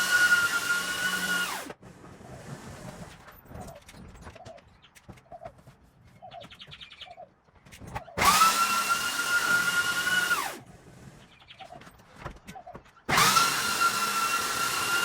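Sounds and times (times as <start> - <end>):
electric sander motor whine: 0.0 - 1.7, 8.2 - 10.6, 13.1 - 15.0.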